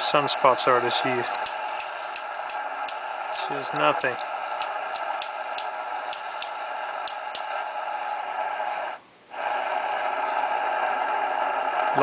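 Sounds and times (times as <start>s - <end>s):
radio static hiss: 0.0s - 12.0s
sharp clicks: 1.3s - 3.1s, 4.0s - 7.5s.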